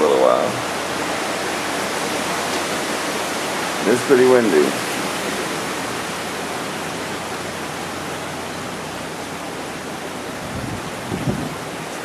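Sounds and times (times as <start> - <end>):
heavy rain: 0.0 - 12.0
wind: 0.0 - 12.0.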